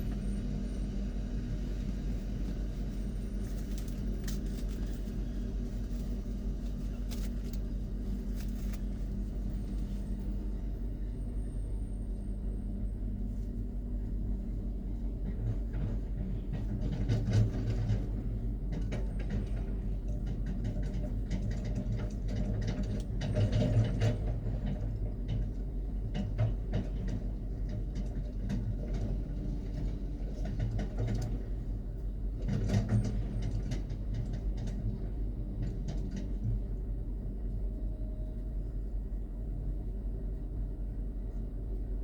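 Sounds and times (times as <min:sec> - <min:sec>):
diesel engine running under load: 0:00.0 - 0:42.0.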